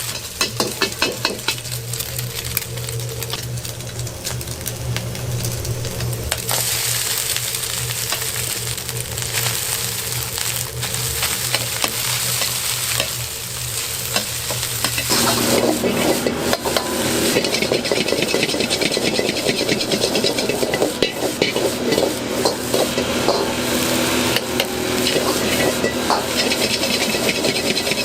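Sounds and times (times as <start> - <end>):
rice sizzling in a pan: 0.0 - 28.0
low hum: 15.1 - 28.0.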